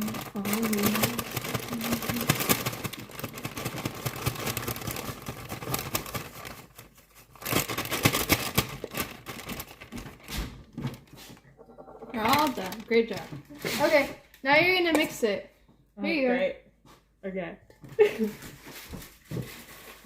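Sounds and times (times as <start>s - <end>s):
packet crinkling and rustling: 0.0s - 11.5s, 12.1s - 14.2s, 18.1s - 20.0s.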